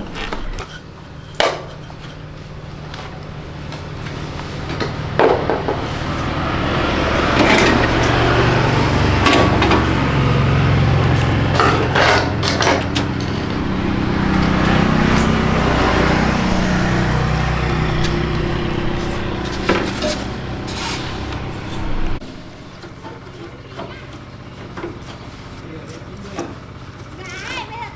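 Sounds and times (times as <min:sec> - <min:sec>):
knocks and scrapes: 0:00.0 - 0:02.2, 0:10.8 - 0:23.5
motor humming: 0:04.0 - 0:25.0.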